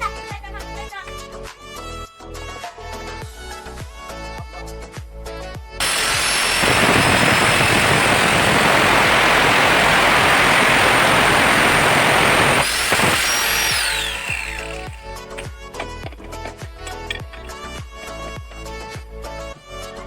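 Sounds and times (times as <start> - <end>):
power tool whining: 5.8 - 19.4.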